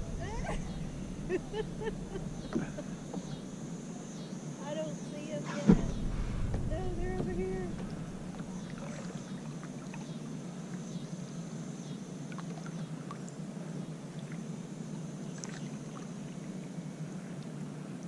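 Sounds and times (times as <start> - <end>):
low hum: 0.0 - 11.2
water lapping and dripping: 5.6 - 10.1, 15.4 - 16.5.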